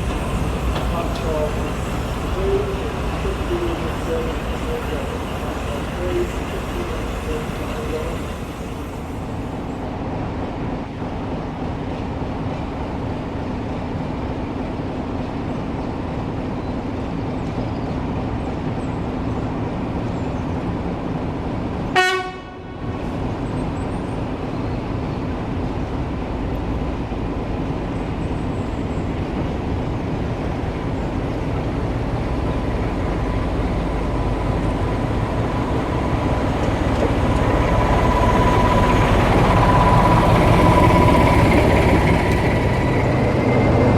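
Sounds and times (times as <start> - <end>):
train rumbling: 0.0 - 43.9
train horn toot: 21.9 - 22.9.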